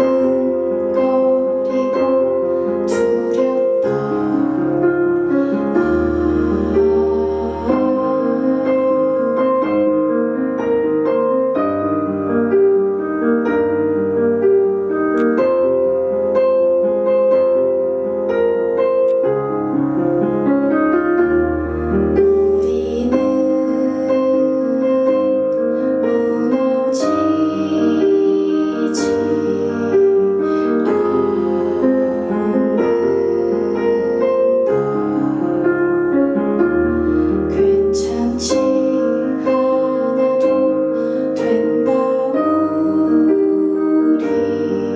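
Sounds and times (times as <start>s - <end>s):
woman singing: 0.0s - 10.5s, 22.1s - 44.9s
piano playing: 0.0s - 44.9s.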